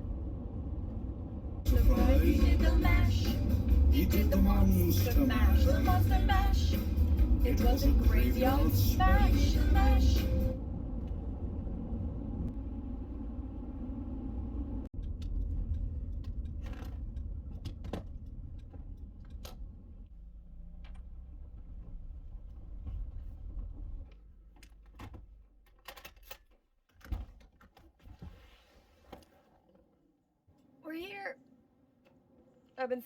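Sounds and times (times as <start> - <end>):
car road and engine rumble: 0.0 - 26.3.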